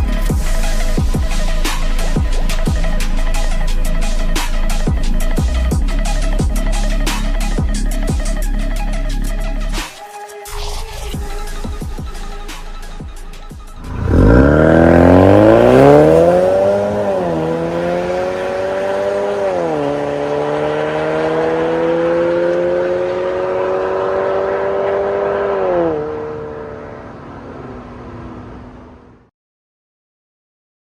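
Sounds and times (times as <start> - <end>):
music track: 10.4 - 24.7
car engine accelerating: 12.8 - 29.3.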